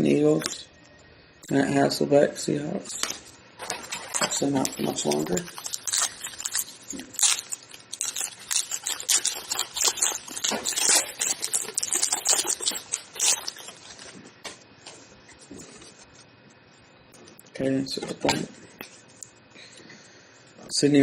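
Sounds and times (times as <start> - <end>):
foil wrapper tearing and crinkling: 3.0 - 14.2.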